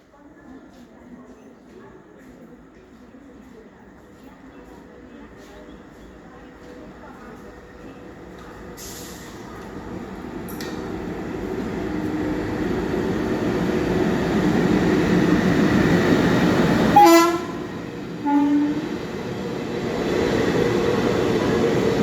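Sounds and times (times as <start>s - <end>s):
train rumbling: 4.2s - 22.0s
train horn toots: 17.0s - 18.9s.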